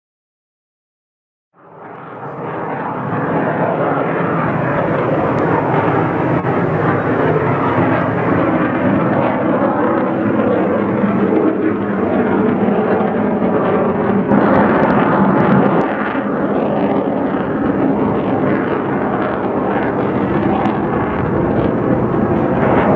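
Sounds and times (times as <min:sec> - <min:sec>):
jet engine flying past: 0:01.6 - 0:22.9.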